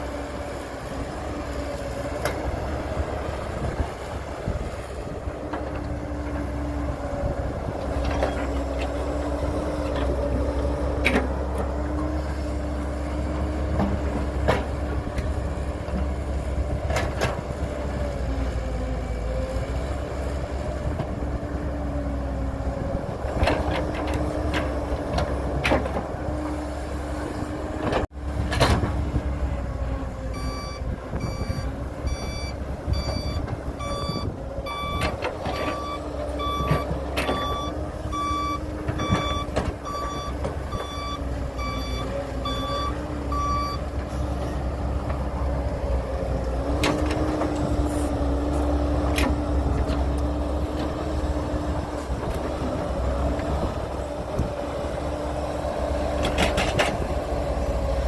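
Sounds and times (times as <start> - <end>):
heavy machinery engine running: 0.0 - 58.0
reversing alarm beeping: 30.3 - 43.8.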